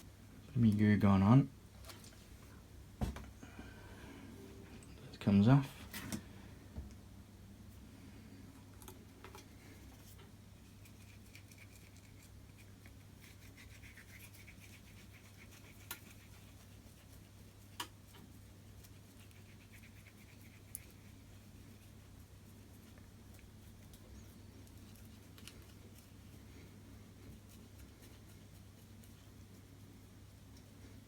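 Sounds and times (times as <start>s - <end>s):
low hum: 3.4s - 5.4s.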